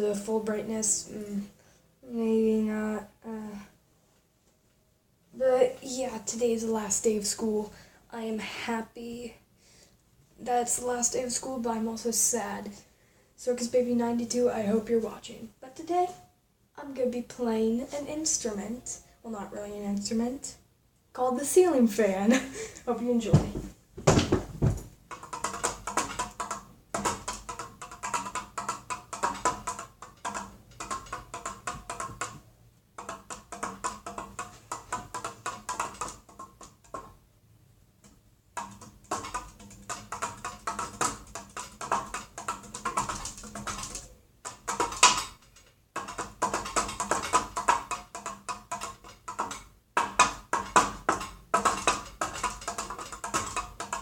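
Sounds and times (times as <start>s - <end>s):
taps and knocks on ceiling fan: 23.3s - 37.2s, 38.0s - 54.0s.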